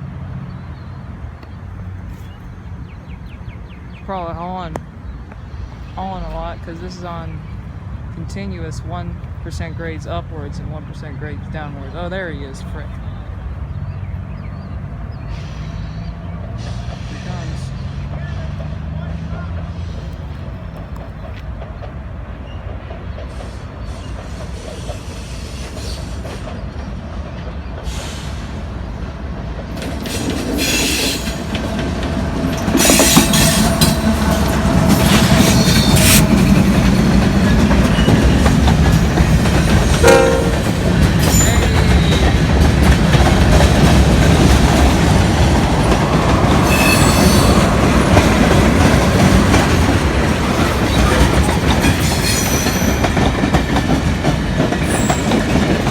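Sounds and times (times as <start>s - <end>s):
freight train rumbling: 0.0s - 55.9s
wheels clacking over rails: 16.7s - 55.9s.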